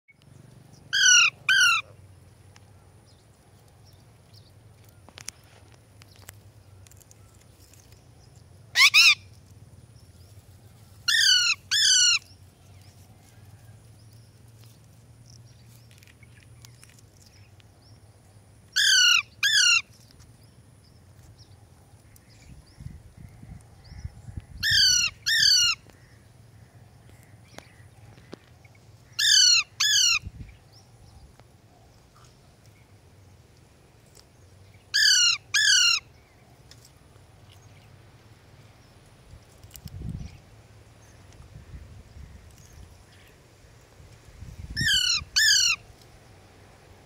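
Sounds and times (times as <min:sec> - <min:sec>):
parakeet screeching: 0:00.9 - 0:01.9, 0:08.7 - 0:09.2, 0:11.1 - 0:12.3, 0:18.8 - 0:19.8, 0:24.6 - 0:25.8, 0:29.2 - 0:30.2, 0:34.9 - 0:36.0, 0:44.8 - 0:45.8.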